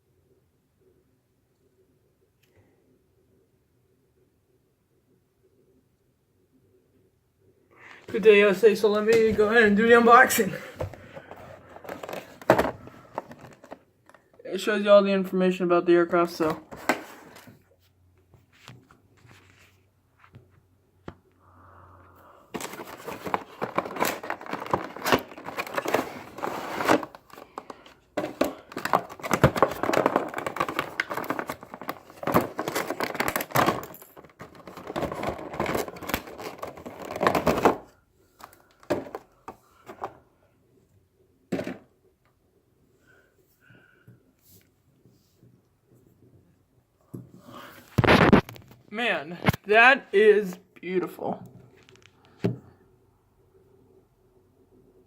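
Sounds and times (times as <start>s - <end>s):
packaging crinkling and tearing: 22.6s - 38.8s, 48.0s - 48.7s.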